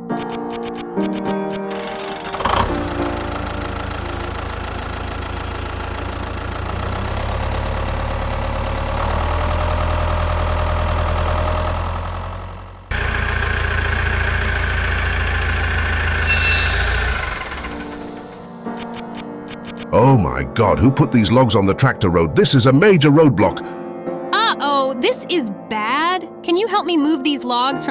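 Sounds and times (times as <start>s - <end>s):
tractor engine chugging: 0.0s - 19.8s.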